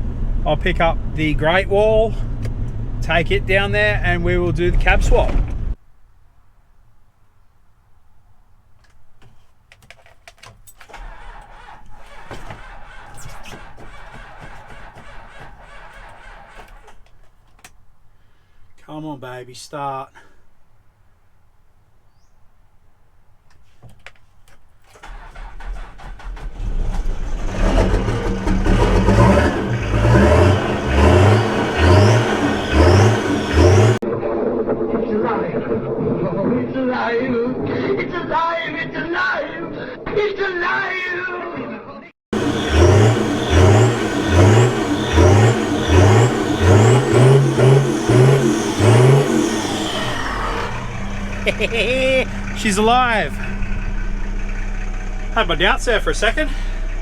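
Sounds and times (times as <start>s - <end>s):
starter cranking engine: 10.9s - 17.0s, 24.9s - 34.0s, 42.4s - 57.0s
truck engine revving: 11.0s - 16.9s, 25.0s - 34.0s, 42.3s - 57.0s.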